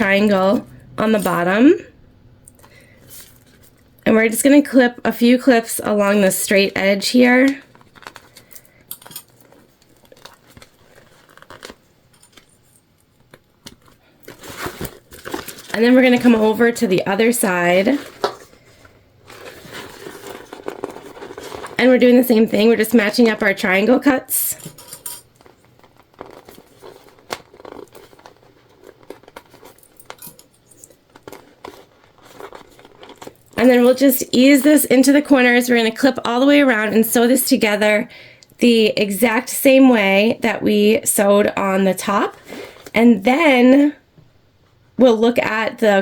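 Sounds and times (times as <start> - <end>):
vinyl bag crinkling and rustling: 2.6 - 4.0, 7.1 - 34.8.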